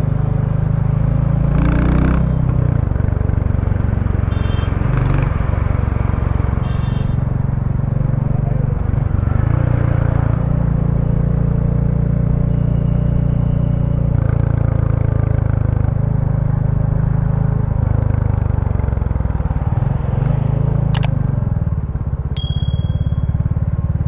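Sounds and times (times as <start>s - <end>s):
sharp click: 21.0s - 21.2s
motorcycle engine running: 21.0s - 24.0s.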